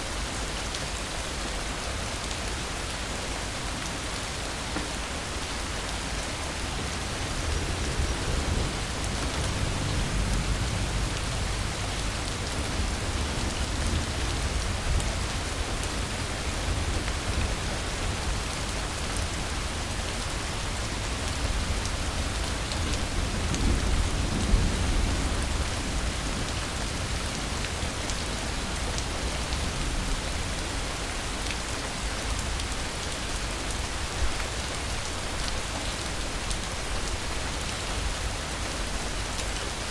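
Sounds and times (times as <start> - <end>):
steady rain falling: 0.0 - 39.9
low rumbles of thunder: 6.7 - 30.7.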